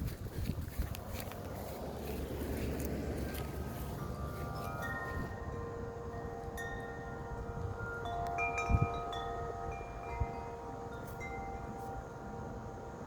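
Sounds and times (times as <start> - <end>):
wind rumbling on microphone: 0.0 - 13.0
wind chimes ringing: 3.1 - 13.0.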